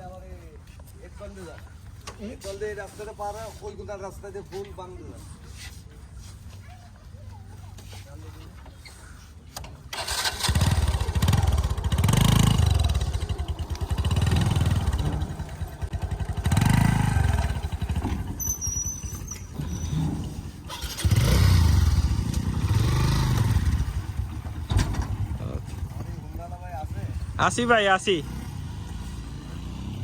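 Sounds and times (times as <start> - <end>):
motorcycle engine revving: 9.9 - 30.0.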